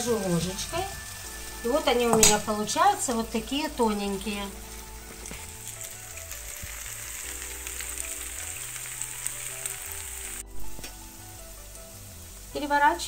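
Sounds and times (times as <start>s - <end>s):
pancakes sizzling in hot oil: 0.0s - 13.0s
quiet background music: 0.0s - 13.0s.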